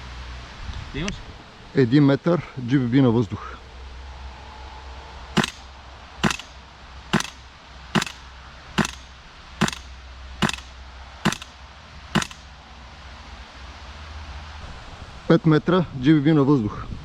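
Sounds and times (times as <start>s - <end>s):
airsoft rifle shots: 5.4s - 11.6s, 12.2s - 12.6s.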